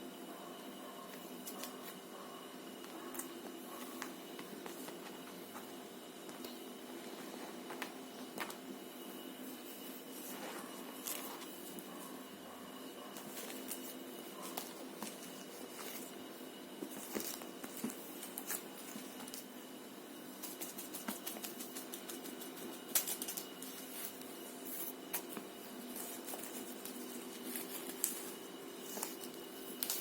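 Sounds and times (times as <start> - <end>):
faint hum: 0.0 - 30.0
kittens pattering and scratching: 1.1 - 2.0, 2.8 - 8.6, 13.1 - 16.2, 16.8 - 19.5, 20.4 - 30.0.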